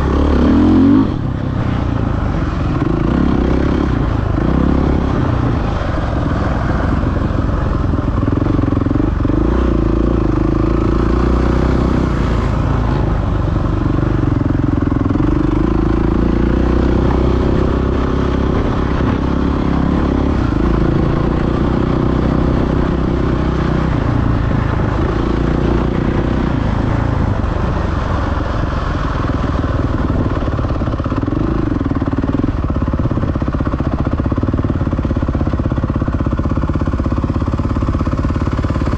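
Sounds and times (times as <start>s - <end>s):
motocross bike engine revving: 0.0s - 27.8s
steady rush of noise: 0.0s - 38.9s.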